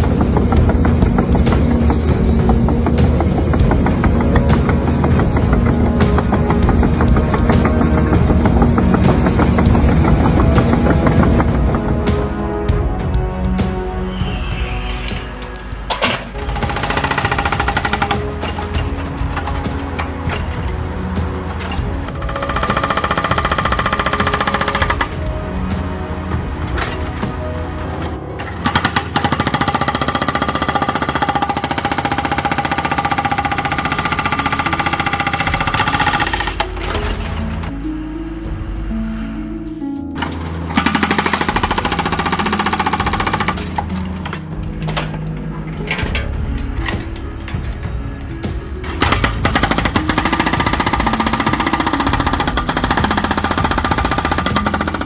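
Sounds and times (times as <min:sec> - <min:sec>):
hydraulic breaker hammering rock: 0:00.0 - 0:11.9, 0:16.1 - 0:20.7, 0:21.3 - 0:25.6, 0:28.4 - 0:37.6, 0:40.7 - 0:44.4, 0:48.9 - 0:55.0.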